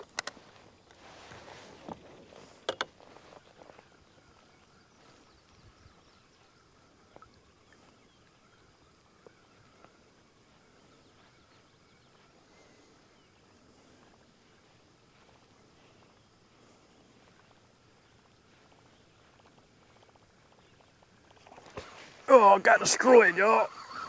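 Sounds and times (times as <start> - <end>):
faint ticks: 0.0 - 1.6, 13.4 - 22.2
faint steady hiss: 0.0 - 24.0.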